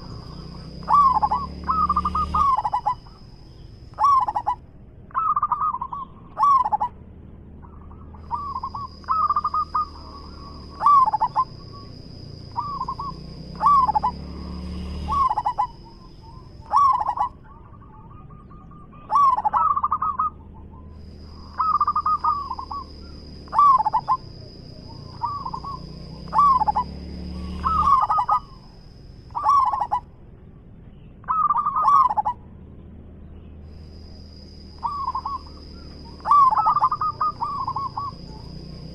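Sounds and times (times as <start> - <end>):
dove cooing: 0.0 - 7.0, 7.6 - 30.1, 31.2 - 32.4, 34.5 - 38.9
high-pitched whine: 7.6 - 30.2.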